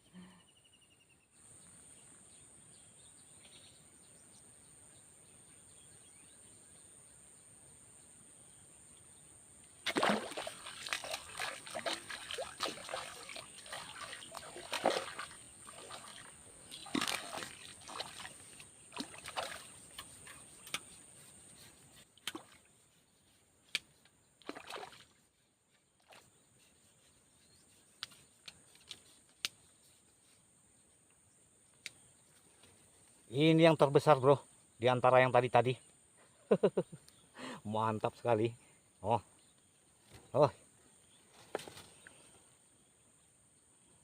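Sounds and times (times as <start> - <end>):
fish splashing in water: 9.8 - 20.3, 24.4 - 25.1.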